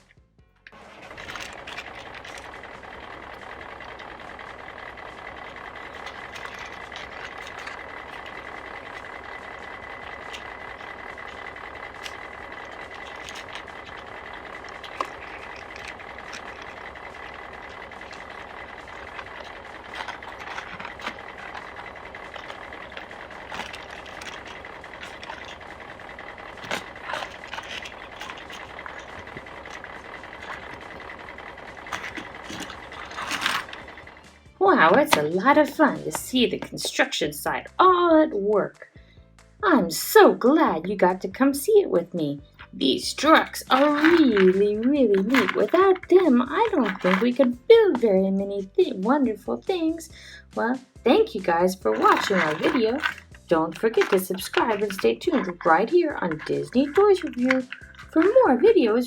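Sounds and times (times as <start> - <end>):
construction machinery engine: 0.0 - 38.4, 39.6 - 59.0
small sharp clicks and knocks: 52.0 - 58.4.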